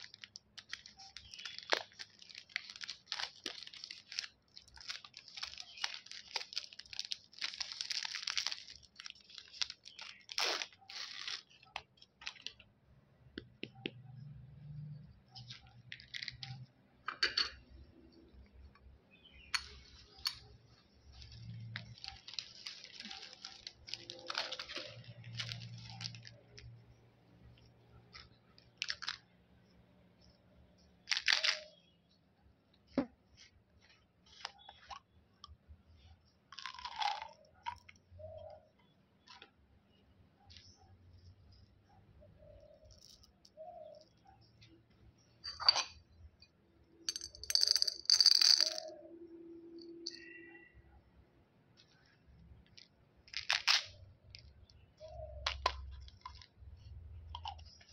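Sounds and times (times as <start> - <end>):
plastic wrappers crinkling: 0.0 - 12.7, 15.3 - 16.7, 19.6 - 27.0, 27.6 - 29.3, 31.0 - 32.0, 36.0 - 38.6, 47.1 - 49.0, 51.8 - 57.9.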